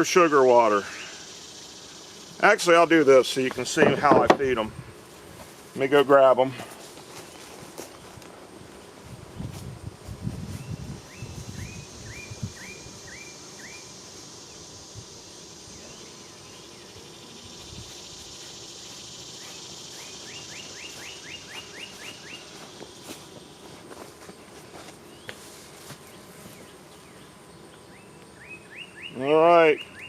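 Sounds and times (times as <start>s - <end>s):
insects droning: 0.0s - 30.0s
soft thumps: 3.7s - 4.6s
songbird chirping: 15.7s - 23.8s, 26.0s - 30.0s.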